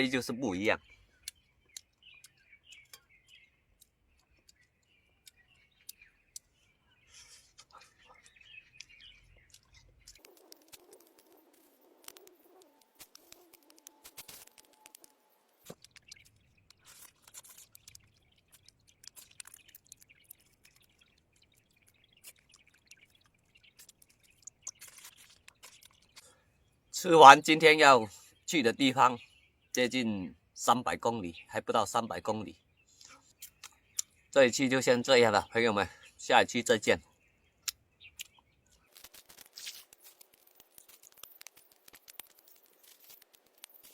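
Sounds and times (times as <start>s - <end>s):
faint irregular crackling: 0.0s - 29.0s, 32.4s - 43.9s
faint small clicks: 1.2s - 26.3s, 37.6s - 43.9s.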